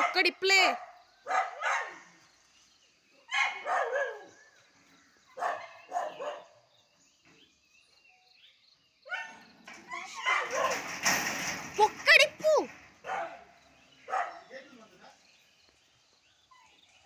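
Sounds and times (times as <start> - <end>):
dog barking: 0.0 - 2.2, 3.3 - 4.4, 5.3 - 6.6, 9.1 - 9.5, 10.2 - 10.8, 13.0 - 13.5, 14.1 - 14.6.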